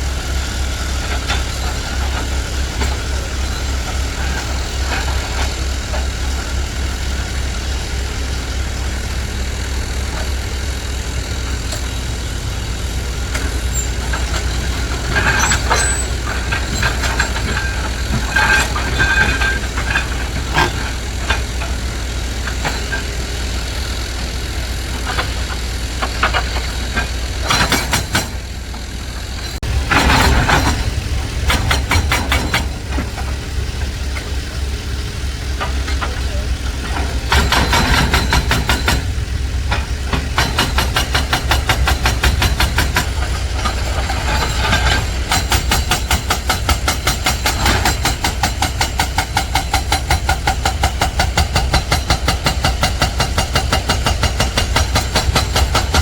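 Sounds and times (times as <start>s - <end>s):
diesel truck engine rumbling: 0.0s - 56.0s
metal clanks: 13.2s - 56.0s.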